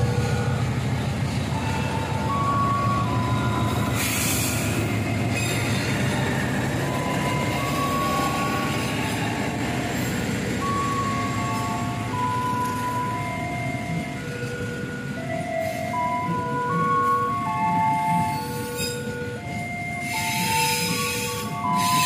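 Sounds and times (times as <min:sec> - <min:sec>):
locomotive engine rumbling: 0:00.0 - 0:22.0
train coaches rolling on rails: 0:00.0 - 0:22.0
high wheel squeals: 0:01.6 - 0:12.2, 0:18.0 - 0:19.1, 0:20.0 - 0:22.0.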